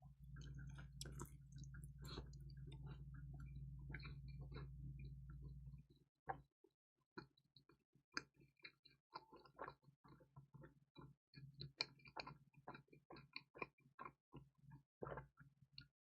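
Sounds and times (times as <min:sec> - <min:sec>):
wet mouth clicks chewing: 0:00.4 - 0:04.7.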